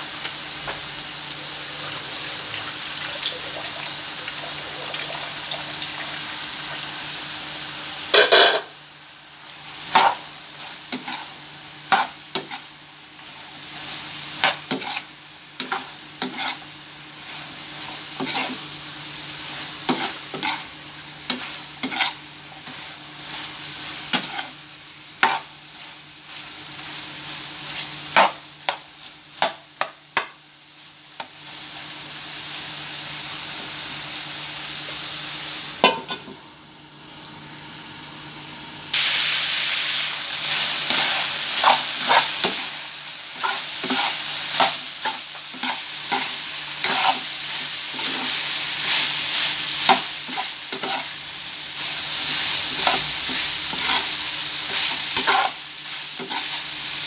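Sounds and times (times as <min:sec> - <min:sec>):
meat sizzling in a frying pan: 0:00.0 - 0:36.2, 0:38.9 - 0:57.0
metal spatula scraping a pan: 0:14.4 - 0:16.7, 0:17.8 - 0:18.6, 0:19.9 - 0:20.7, 0:21.3 - 0:23.4, 0:43.4 - 0:49.1, 0:49.9 - 0:51.1, 0:52.2 - 0:55.6.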